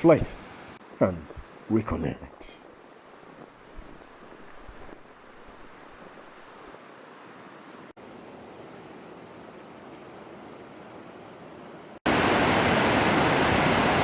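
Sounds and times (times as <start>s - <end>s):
waterfall rushing water: 4.8s - 14.0s.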